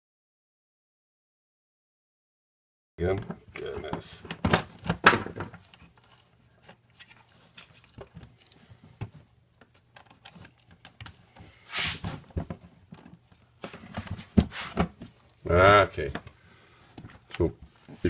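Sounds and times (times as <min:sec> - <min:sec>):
plastic clicks and handling noises: 0:03.6 - 0:11.4, 0:15.1 - 0:18.0
plastic scrape: 0:11.4 - 0:12.3.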